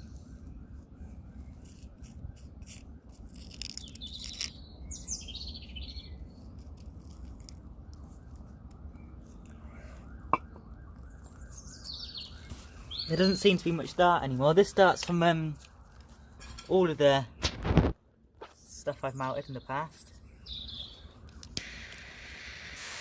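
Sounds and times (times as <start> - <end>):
birds chirping and whistling: 3.7 - 6.5, 11.2 - 13.8, 19.5 - 21.8.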